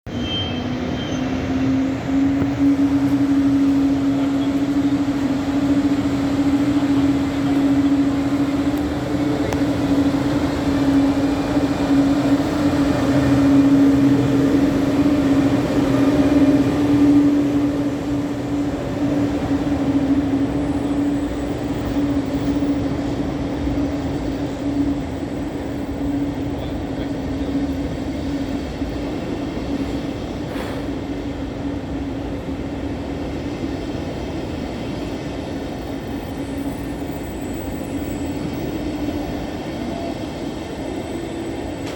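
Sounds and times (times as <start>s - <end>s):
electric train hum: 0.0s - 41.9s
wheels rumbling on rail: 0.0s - 41.9s.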